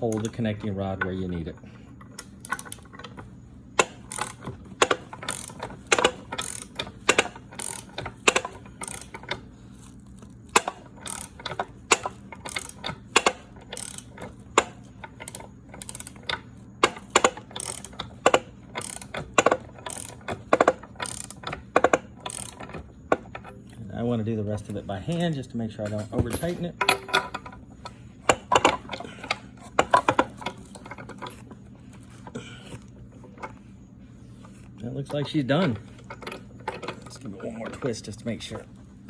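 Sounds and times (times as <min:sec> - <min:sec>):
ratchet wrench clicking: 0:02.1 - 0:03.2, 0:03.8 - 0:23.3.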